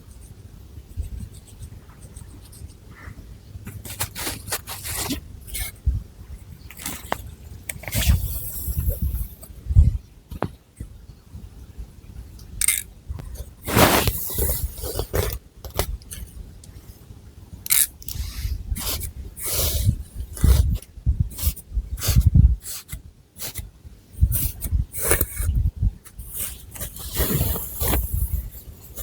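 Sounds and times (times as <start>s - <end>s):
fingernails scratching hair: 13.7s - 15.0s.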